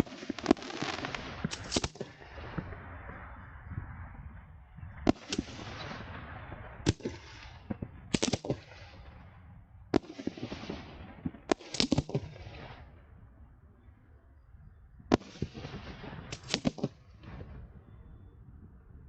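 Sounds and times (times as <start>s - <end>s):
fireworks crackling hiss: 0.0s - 3.2s, 15.3s - 16.8s
fireworks bursting with bangs: 0.0s - 13.1s, 15.1s - 17.8s.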